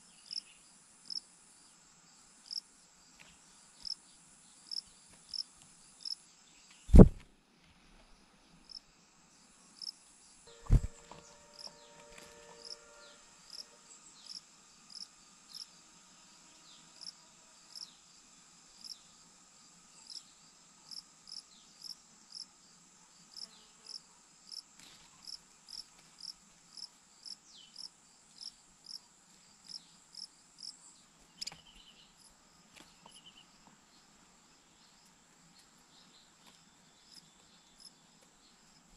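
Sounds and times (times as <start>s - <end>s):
loud thumps: 6.9s - 7.2s, 10.6s - 11.2s
insect high trill: 10.5s - 15.7s
short high insect chirps: 10.5s - 15.7s.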